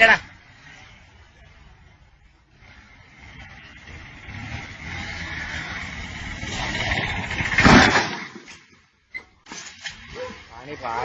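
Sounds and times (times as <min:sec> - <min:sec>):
vehicle engine approaching: 0:00.0 - 0:08.1
loud sudden noise: 0:06.4 - 0:08.5.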